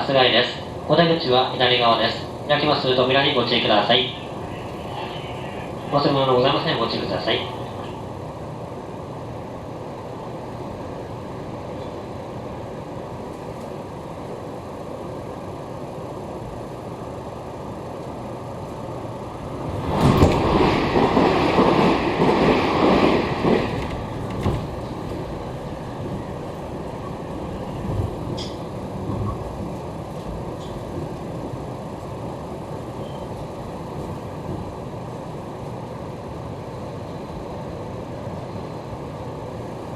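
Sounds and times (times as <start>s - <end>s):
train wheels rumbling on rails: 0.0s - 39.9s
train clatter: 19.5s - 31.6s.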